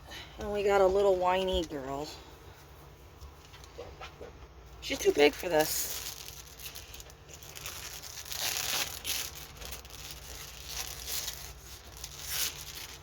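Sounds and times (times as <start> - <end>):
plastic packaging crinkling: 4.9 - 13.0.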